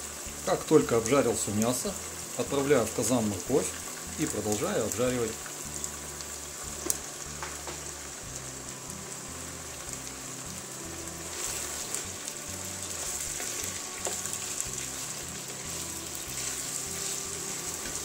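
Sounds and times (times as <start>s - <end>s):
food sizzling in hot oil: 0.0s - 18.0s
wooden spatula stirring pot: 11.2s - 18.0s.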